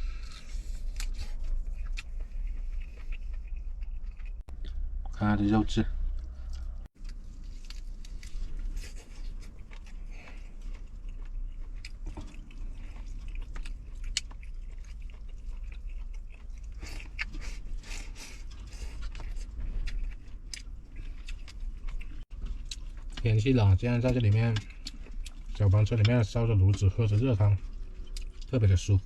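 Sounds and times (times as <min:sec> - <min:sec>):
person chewing food: 0:00.0 - 0:05.0, 0:06.0 - 0:29.0
low rumble: 0:00.0 - 0:11.2.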